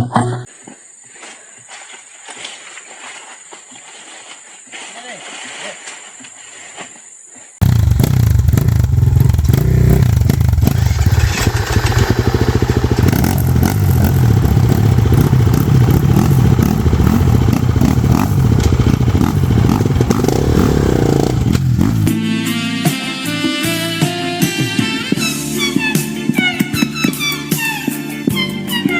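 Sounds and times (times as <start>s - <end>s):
dirt bike engine revving: 7.6s - 22.2s.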